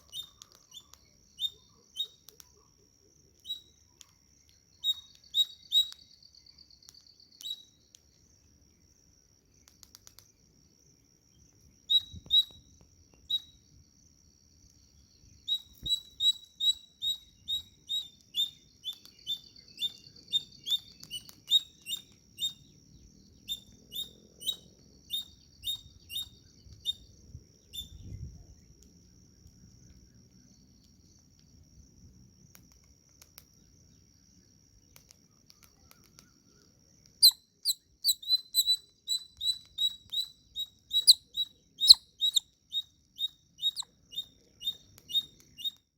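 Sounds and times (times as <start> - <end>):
chipmunk chirping: 0.0 - 2.4, 3.4 - 3.8, 4.8 - 6.2, 11.9 - 12.6, 15.4 - 22.8, 23.4 - 27.1, 37.2 - 45.9
faint high-pitched whine: 0.0 - 45.9.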